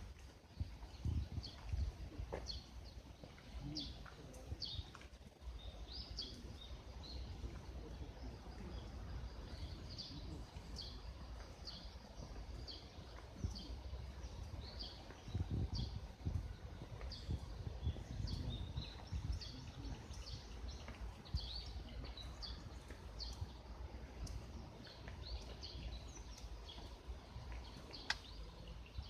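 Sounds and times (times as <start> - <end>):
birds chirping: 0.1 - 29.0.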